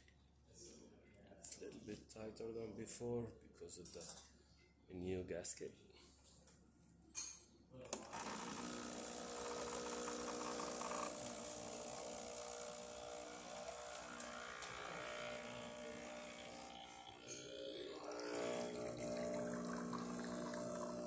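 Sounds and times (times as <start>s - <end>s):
espresso pump buzzing: 7.9s - 21.0s.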